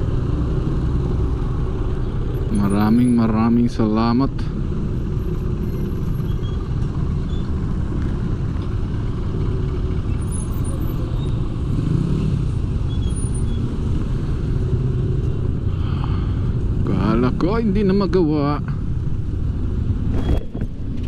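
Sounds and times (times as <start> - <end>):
motorcycle road rumble: 0.0 - 21.0.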